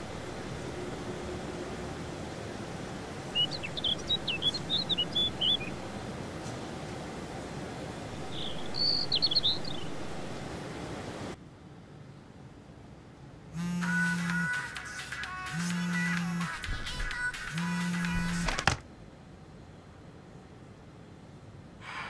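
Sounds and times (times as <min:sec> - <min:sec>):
low outdoor ambience hum: 0:00.0 - 0:22.0
bird chirping: 0:03.3 - 0:06.0, 0:08.2 - 0:10.4.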